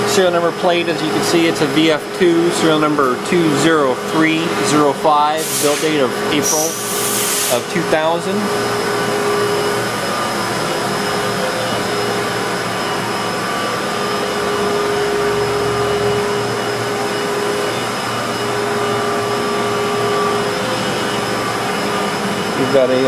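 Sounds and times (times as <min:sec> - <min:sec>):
machine whirring hum: 0:00.0 - 0:23.0
whining tones: 0:05.6 - 0:23.0.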